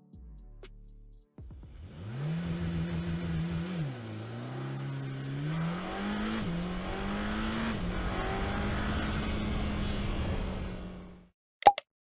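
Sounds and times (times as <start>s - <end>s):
car engine accelerating: 1.6s - 11.3s.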